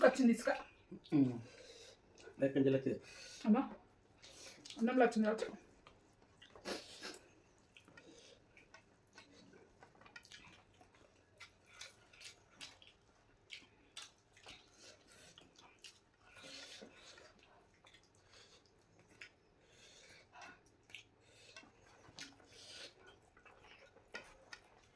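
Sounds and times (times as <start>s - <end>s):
wet chewing clicks: 5.8s - 24.9s.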